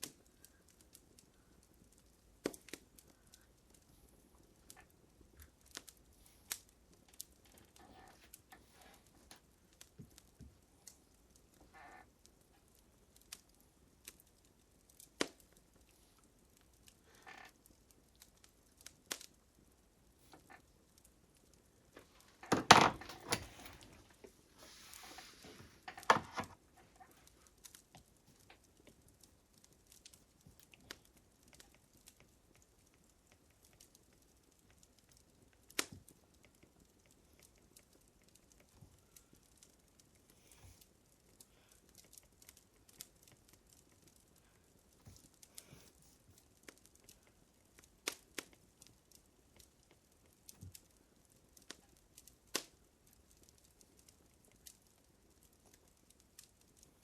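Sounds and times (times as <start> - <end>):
fire crackling: 0.0 - 57.0
fire hissing: 23.6 - 25.9.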